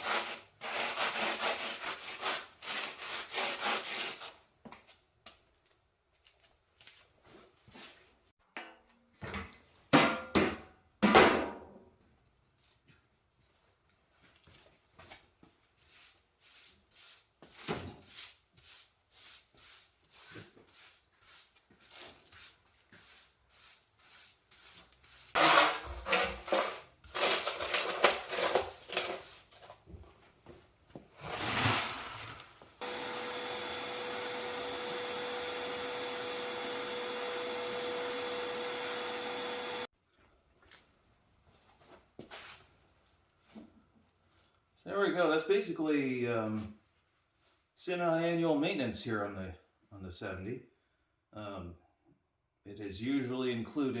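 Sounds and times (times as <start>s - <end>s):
sweeping granules: 31.2s - 32.6s
vacuum cleaner humming: 32.8s - 39.9s.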